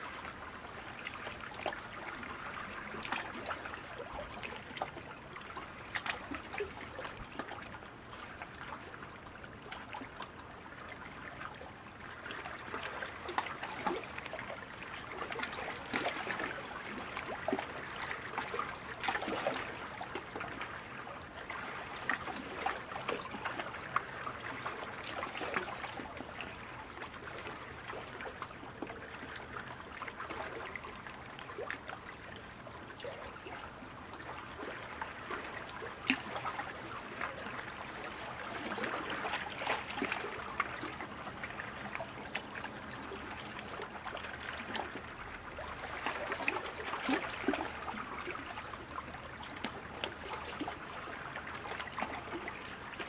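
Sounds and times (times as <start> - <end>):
paddles splashing water: 12.1 - 53.0.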